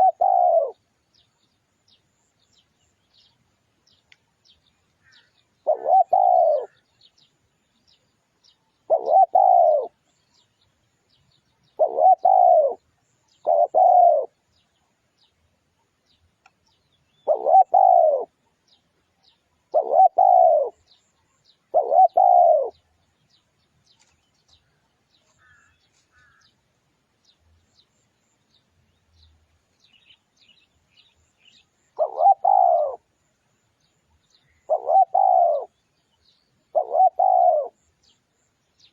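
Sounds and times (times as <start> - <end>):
dove cooing: 0.0 - 0.8, 5.1 - 6.8, 8.9 - 10.0, 11.8 - 14.4, 17.2 - 18.4, 19.7 - 21.0, 21.6 - 22.8, 32.0 - 33.1, 34.5 - 35.8, 36.7 - 37.8
small birds chirping: 0.0 - 38.9.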